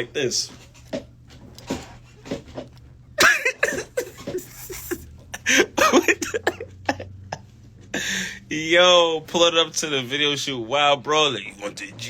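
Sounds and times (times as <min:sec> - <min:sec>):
person laughing: 0:03.2 - 0:08.4.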